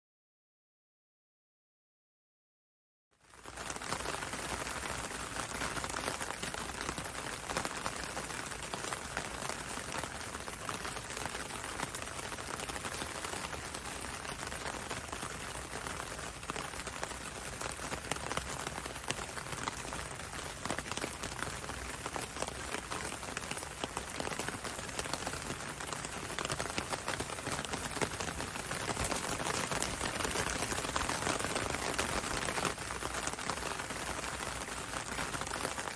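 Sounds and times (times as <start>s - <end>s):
rain on a window: 3.2s - 35.9s.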